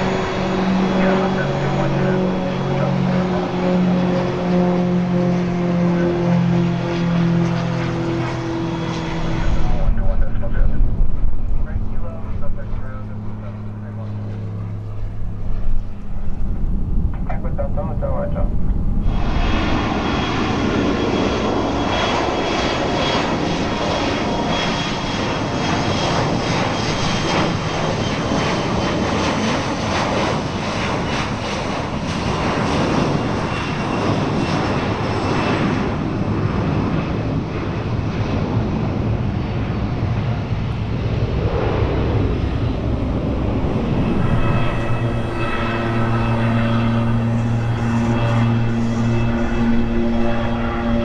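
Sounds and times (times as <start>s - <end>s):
steady low hum: 0.0s - 21.8s, 41.8s - 51.0s
airliner engine noise: 0.0s - 51.0s
faint high whine: 43.7s - 51.0s.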